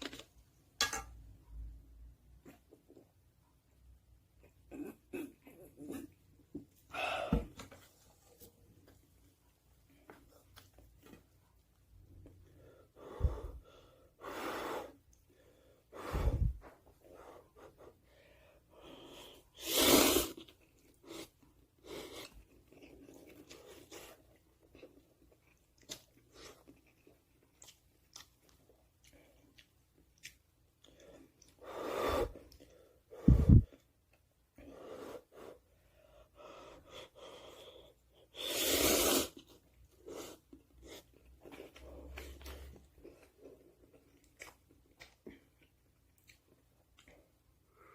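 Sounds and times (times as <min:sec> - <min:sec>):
slurping noodles: 0:38.3 - 0:42.7.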